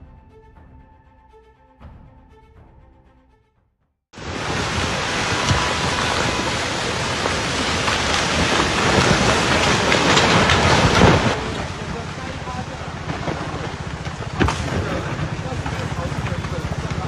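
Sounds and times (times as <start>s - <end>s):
loud steady rushing noise: 14.4s - 17.0s.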